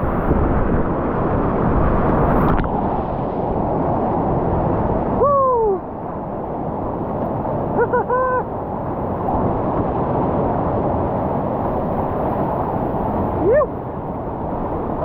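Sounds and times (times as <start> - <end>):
whitewater rapids roaring: 0.0 - 15.0
person yelling: 5.2 - 5.8, 13.4 - 13.8.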